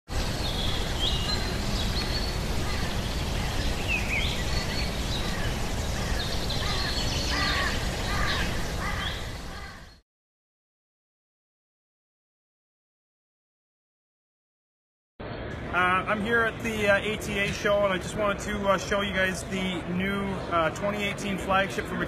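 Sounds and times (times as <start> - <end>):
steady background noise: 0.1 - 9.9, 15.2 - 22.0
birds chirping: 0.1 - 10.0, 15.4 - 22.0.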